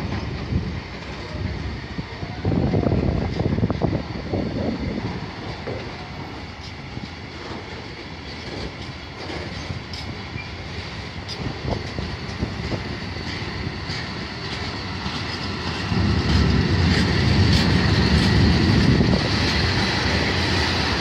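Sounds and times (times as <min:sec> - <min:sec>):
freight train wheels rumbling: 0:00.0 - 0:21.0
wheels clattering over rail joints: 0:05.4 - 0:21.0.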